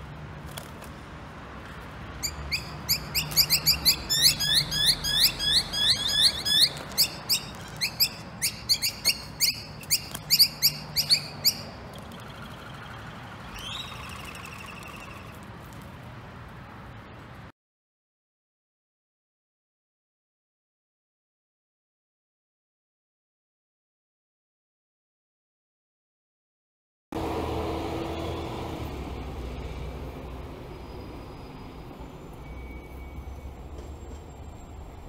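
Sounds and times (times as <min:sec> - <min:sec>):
small birds chirping rapidly: 0:02.2 - 0:15.4
buzzy falling bird call: 0:02.2 - 0:15.5.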